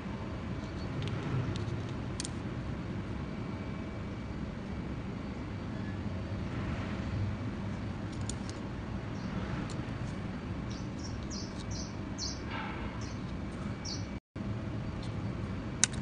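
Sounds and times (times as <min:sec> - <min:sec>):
small birds chirping: 0:09.1 - 0:09.4, 0:10.6 - 0:14.2.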